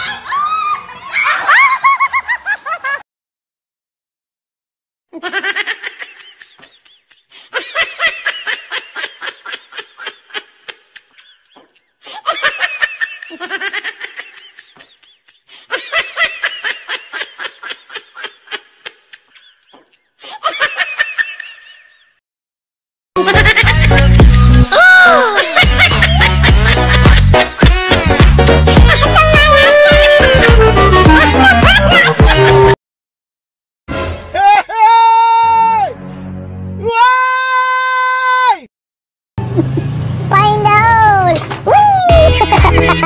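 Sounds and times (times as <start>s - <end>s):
shrieking voices: 0.0s - 1.8s
hearty laughter: 0.0s - 3.0s, 5.2s - 22.1s, 23.2s - 24.2s, 25.1s - 32.8s, 42.1s - 43.0s.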